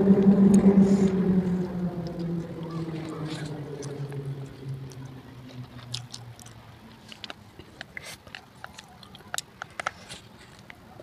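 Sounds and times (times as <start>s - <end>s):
low hum: 0.0s - 7.6s
noodles being slurped and chewed: 2.8s - 10.7s.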